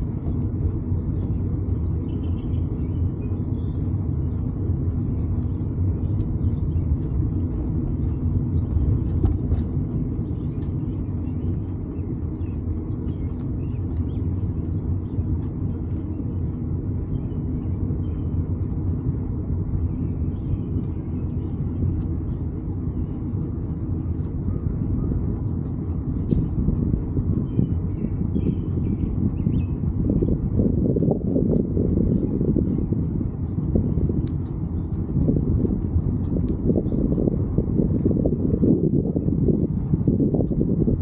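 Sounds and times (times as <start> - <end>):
wind and road noise: 0.0 - 41.0
faint ticks: 34.2 - 37.3.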